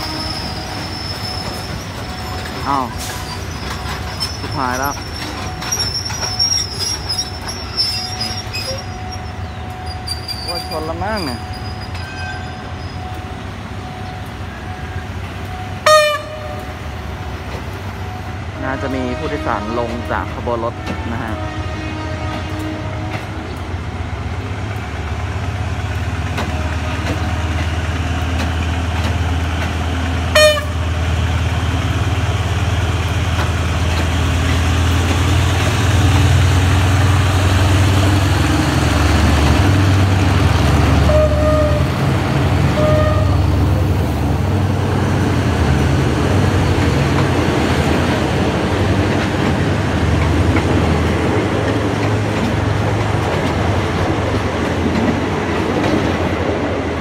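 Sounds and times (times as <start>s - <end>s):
train horn toots: 0.0s - 1.6s, 14.0s - 16.8s, 18.1s - 23.6s, 26.4s - 27.8s, 30.3s - 31.0s, 40.9s - 43.6s
train rumbling past: 0.0s - 57.0s.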